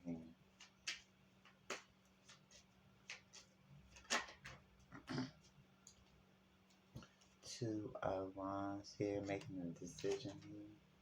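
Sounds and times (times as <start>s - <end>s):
faint steady hum: 0.0s - 11.0s
cards tapping and clicking: 0.6s - 4.6s.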